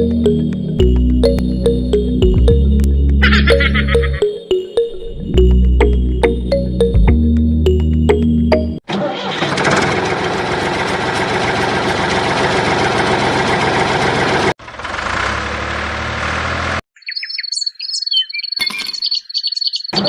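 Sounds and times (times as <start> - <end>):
engine running: 9.3 - 16.8
high gliding chirping calls: 17.0 - 20.0.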